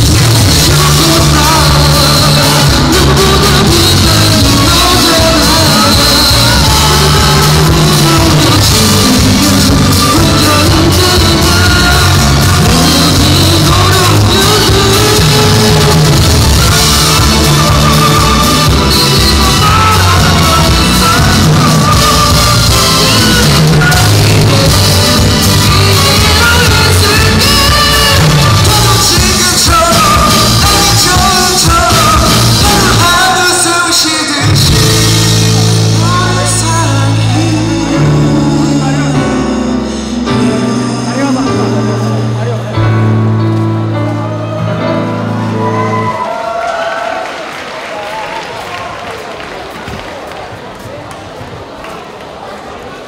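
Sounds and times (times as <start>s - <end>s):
person singing: 0.0s - 46.5s
live rock music: 0.0s - 46.6s.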